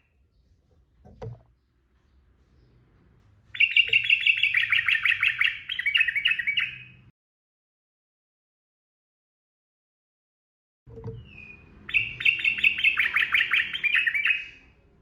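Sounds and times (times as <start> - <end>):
bird singing chattering notes: 3.5 - 7.0, 11.2 - 14.6.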